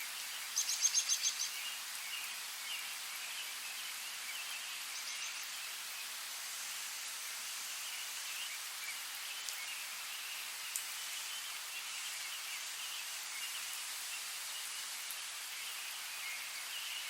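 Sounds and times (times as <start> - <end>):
rain falling in forest: 0.0 - 17.0
faint high bird chirping: 0.5 - 5.7
sharp water drips: 3.9 - 16.8.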